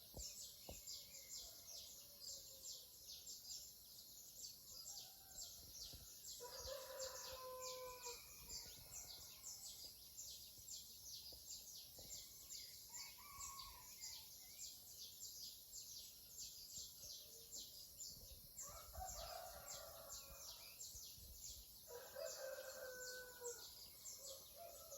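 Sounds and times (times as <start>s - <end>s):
high chirping of insects or birds: 0.0s - 24.9s.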